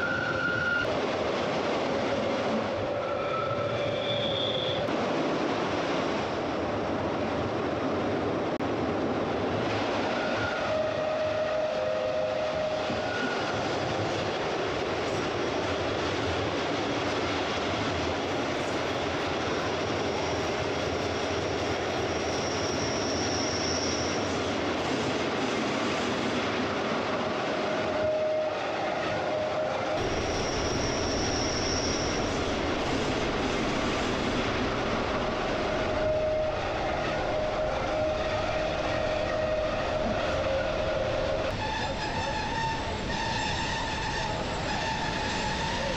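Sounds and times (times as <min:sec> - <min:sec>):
high wheel squeal: 0:00.0 - 0:00.9, 0:02.9 - 0:04.9, 0:22.2 - 0:24.3, 0:29.3 - 0:32.5, 0:35.8 - 0:45.9
rumble of train wheels on rail: 0:00.0 - 0:45.9.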